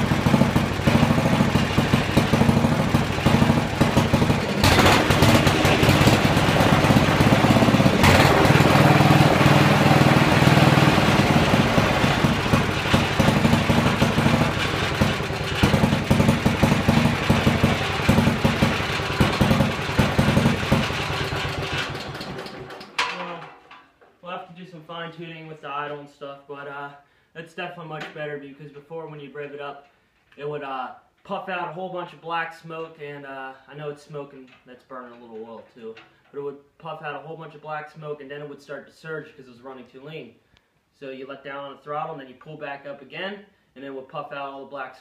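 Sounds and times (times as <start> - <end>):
single-cylinder engine running: 0.0 - 23.2.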